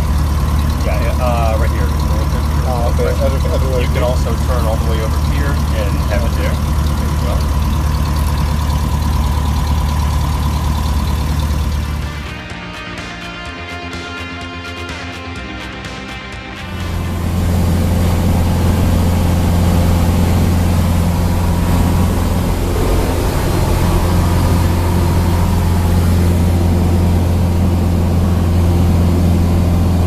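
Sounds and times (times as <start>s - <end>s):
aircraft engine droning: 0.0s - 12.5s, 16.6s - 30.0s.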